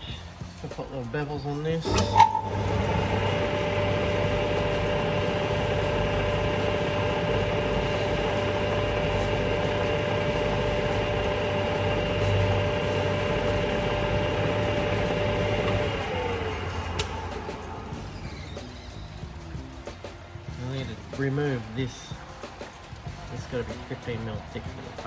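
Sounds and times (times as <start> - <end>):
mechanical hum: 0.0 - 25.0
metal lathe motor whine: 1.7 - 18.9.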